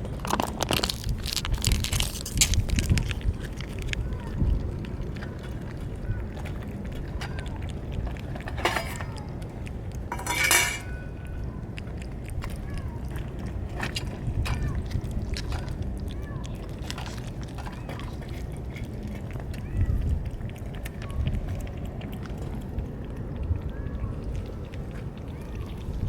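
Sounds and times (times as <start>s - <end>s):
low wind rumble: 0.0s - 26.0s
dry cat food rattling into dish: 0.2s - 3.9s, 7.1s - 9.2s, 10.1s - 11.1s.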